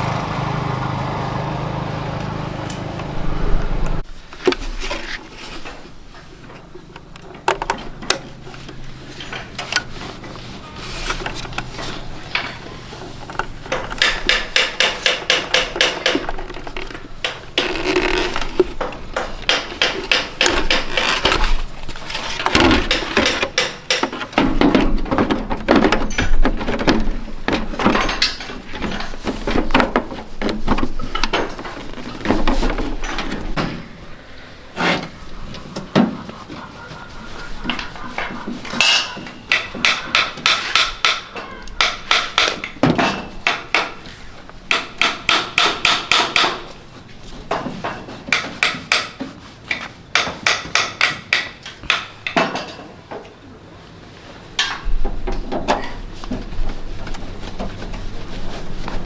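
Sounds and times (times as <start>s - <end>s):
tools and parts clattering: 2.6s - 34.2s, 34.8s - 53.5s, 54.4s - 59.0s
rapid hammer taps: 13.4s - 16.4s.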